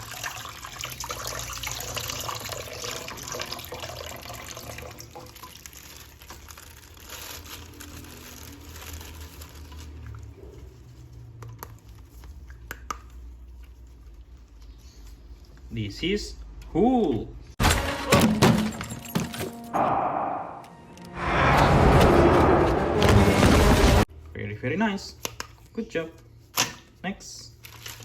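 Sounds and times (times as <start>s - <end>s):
water running from a tap: 0.0s - 6.1s.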